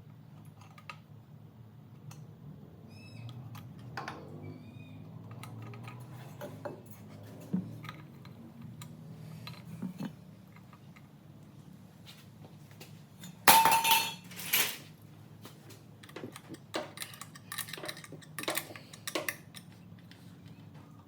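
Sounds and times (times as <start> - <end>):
metal exhaust parts clanking: 13.2 - 14.8.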